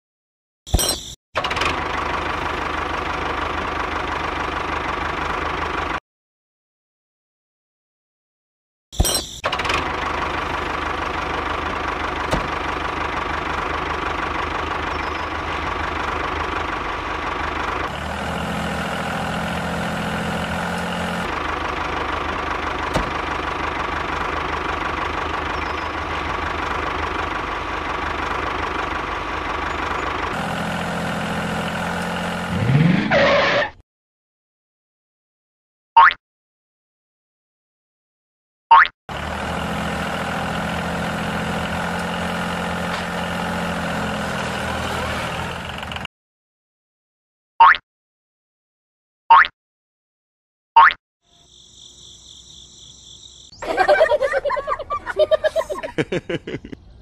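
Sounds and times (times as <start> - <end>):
tractor engine idling with clatter: 1.4 - 6.0, 9.0 - 32.5, 39.1 - 46.1, 53.6 - 56.8
tractor engine revving: 1.4 - 6.0, 9.4 - 33.7, 39.1 - 46.1, 53.5 - 56.8.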